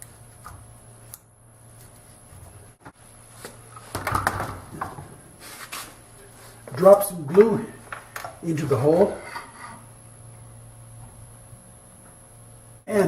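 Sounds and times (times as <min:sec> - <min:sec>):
low steady hum: 0:00.0 - 0:13.0
tool scraping wood: 0:08.8 - 0:09.9.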